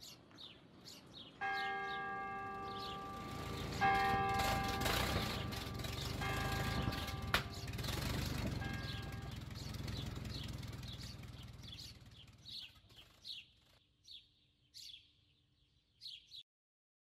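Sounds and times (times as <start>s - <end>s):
small bird chirping: 0.0s - 2.0s, 2.6s - 16.4s
low background rumble: 2.7s - 12.8s.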